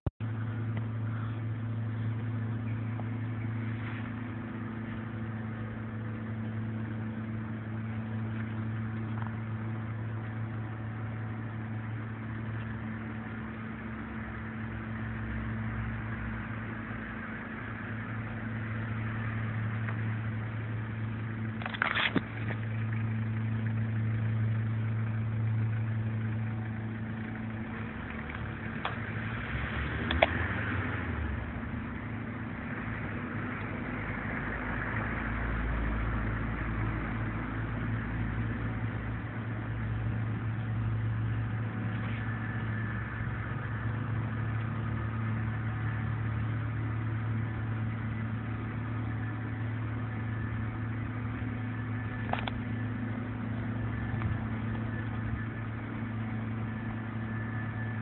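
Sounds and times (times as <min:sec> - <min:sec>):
low motor hum: 0:00.1 - 0:58.0
short rattle: 0:21.5 - 0:23.1.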